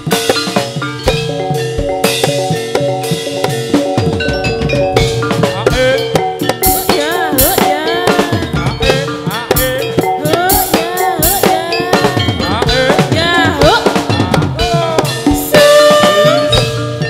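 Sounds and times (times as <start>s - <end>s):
drums beating fast: 0.0s - 17.0s
sliding melody: 0.4s - 17.0s.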